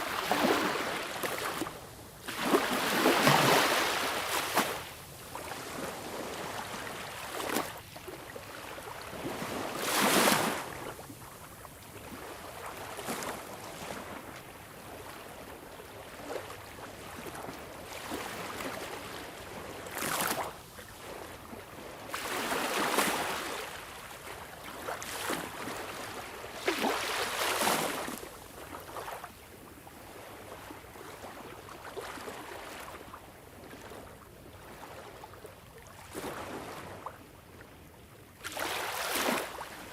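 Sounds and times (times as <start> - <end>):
sea waves surging: 2.3 - 4.8.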